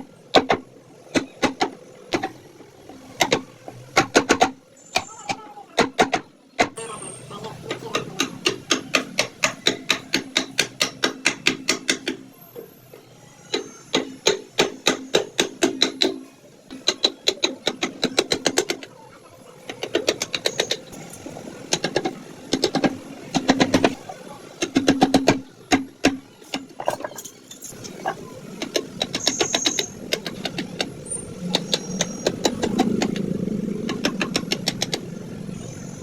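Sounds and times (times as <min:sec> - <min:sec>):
chisel tapping into wood: 0:08.0 - 0:12.2.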